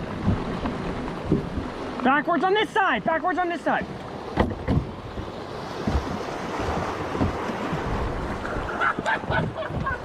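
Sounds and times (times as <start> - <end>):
wind buffeting microphone: 0.0 - 2.0, 4.3 - 10.0
river water rushing: 0.0 - 10.0
low knocks: 4.3 - 8.0.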